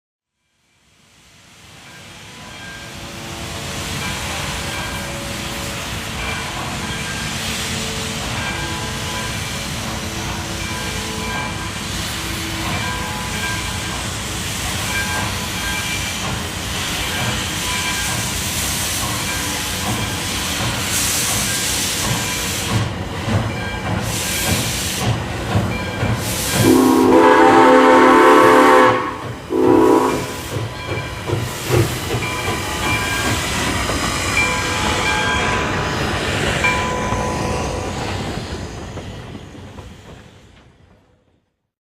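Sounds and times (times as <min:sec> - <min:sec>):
steam locomotive hissing: 0:00.7 - 0:41.2
steam whistle blasts: 0:26.5 - 0:30.5.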